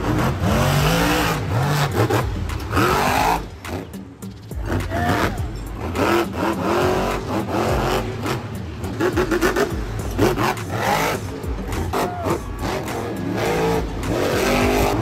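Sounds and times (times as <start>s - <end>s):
monster truck engines revving: 0.0s - 15.0s
music playing: 0.0s - 15.0s.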